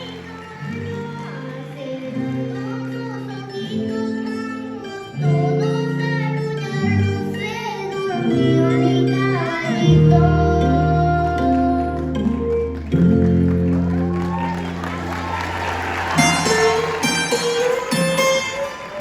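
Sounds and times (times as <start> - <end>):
person singing: 0.0 - 13.2
plucked strings over chords: 0.0 - 14.1.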